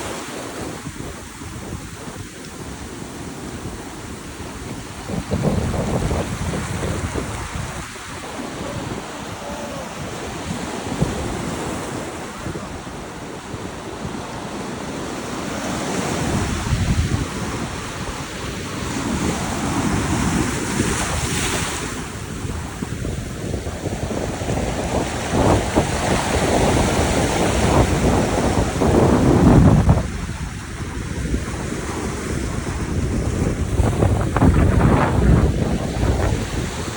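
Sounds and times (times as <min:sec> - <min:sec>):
ocean surf breaking: 0:00.0 - 0:23.0
wind buffeting microphone: 0:00.0 - 0:36.9.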